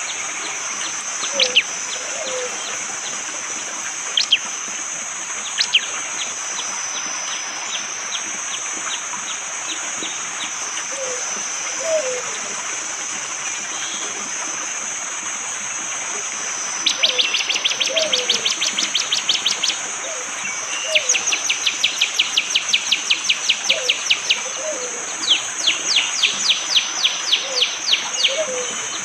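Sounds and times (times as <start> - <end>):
steady high hiss: 0.0 - 29.0
bird rapid repeated call: 1.2 - 2.8, 4.1 - 4.5, 5.4 - 6.3.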